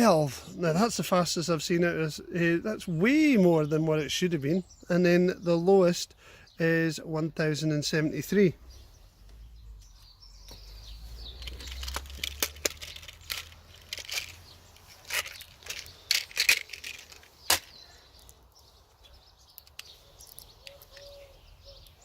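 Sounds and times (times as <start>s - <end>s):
packaging crinkling and scraping: 11.0s - 17.8s.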